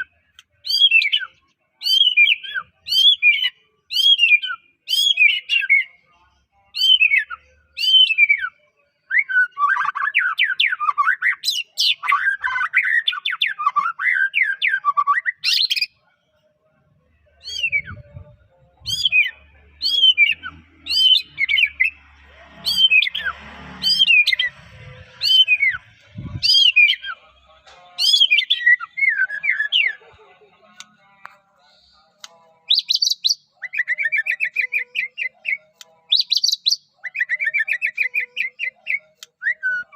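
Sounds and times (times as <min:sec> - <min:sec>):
bird singing whistled notes: 0:00.6 - 0:06.0, 0:06.7 - 0:16.0, 0:17.4 - 0:22.0, 0:22.7 - 0:27.2, 0:28.0 - 0:30.0, 0:32.6 - 0:39.9
fast dense bird warbling: 0:22.6 - 0:27.2.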